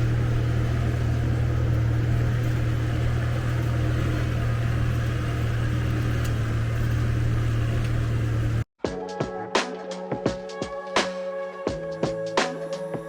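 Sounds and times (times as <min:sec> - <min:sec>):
car engine and road drone: 0:00.0 - 0:08.7.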